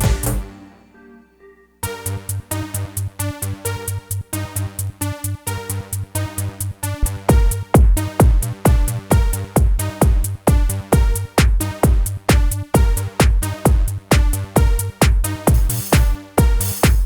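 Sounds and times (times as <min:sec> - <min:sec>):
kick drum beating: 0:00.0 - 0:00.5, 0:07.0 - 0:17.0
steady bass: 0:00.0 - 0:01.2, 0:01.8 - 0:17.0
pitched sample stabs: 0:00.0 - 0:03.1, 0:07.0 - 0:17.0.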